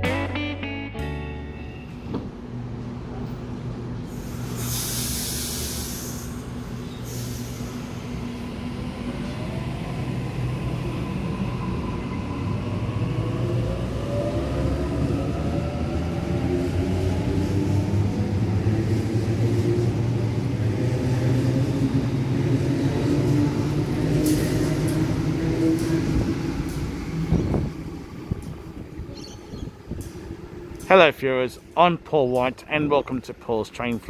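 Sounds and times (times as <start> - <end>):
train whine rising in pitch: 1.2 - 30.9
air hiss: 4.0 - 8.2.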